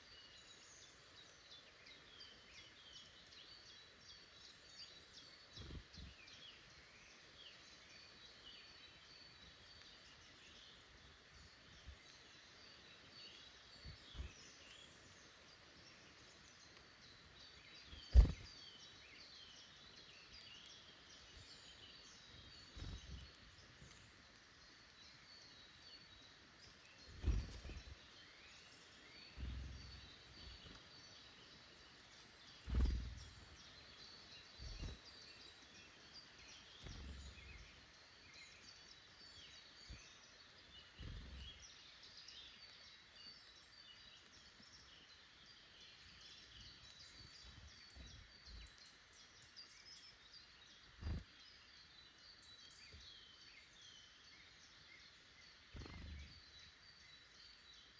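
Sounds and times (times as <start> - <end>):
small birds chirping: 0.0 - 57.9
dull low thumps: 32.7 - 33.4.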